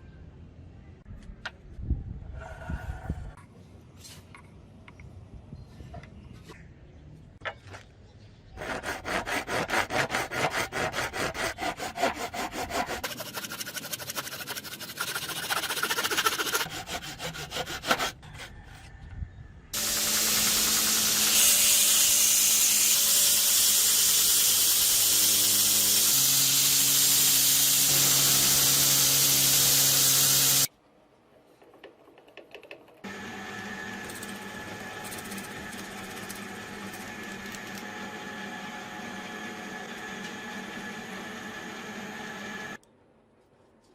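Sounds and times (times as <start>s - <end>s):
power grinder running: 19.8s - 30.7s, 33.0s - 42.8s
quiet power tool running: 19.8s - 30.7s, 33.0s - 42.8s.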